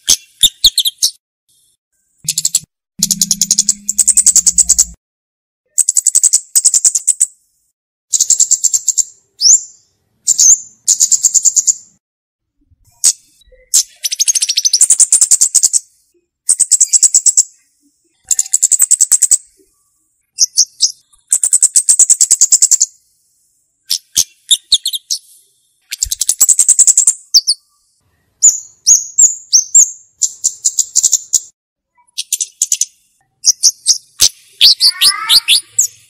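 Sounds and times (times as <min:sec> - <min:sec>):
bird chattering trills: 0:02.3 - 0:05.0, 0:33.4 - 0:36.0.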